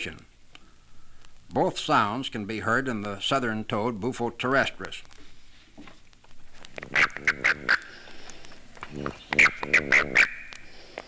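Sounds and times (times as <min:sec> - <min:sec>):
toad buzzy chirps: 0:06.8 - 0:08.1, 0:08.8 - 0:10.8.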